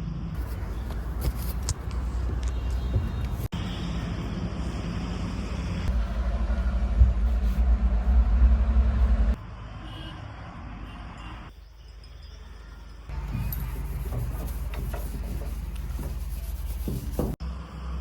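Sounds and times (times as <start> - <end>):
heavy diesel engine throbbing: 3.6 - 9.4.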